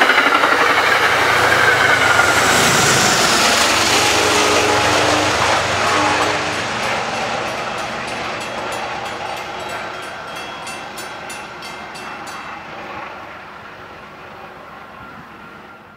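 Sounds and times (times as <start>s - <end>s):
train wheels clicking over rail joints: 0.0s - 13.2s.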